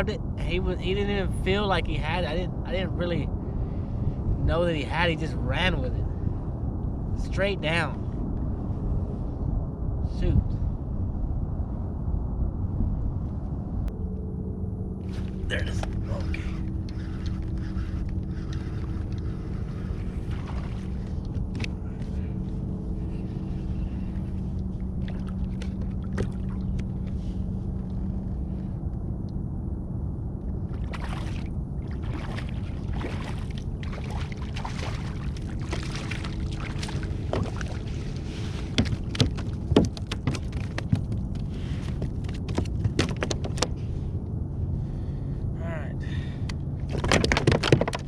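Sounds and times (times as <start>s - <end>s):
low wind rumble: 0.0s - 48.0s
boat motor droning: 14.0s - 29.0s, 30.4s - 45.2s
water splashes: 25.0s - 26.8s, 30.7s - 41.2s.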